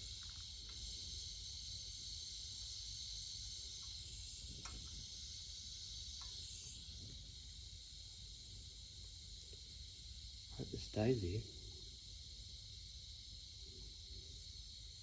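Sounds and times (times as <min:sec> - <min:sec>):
torch flame hissing: 0:00.8 - 0:08.7.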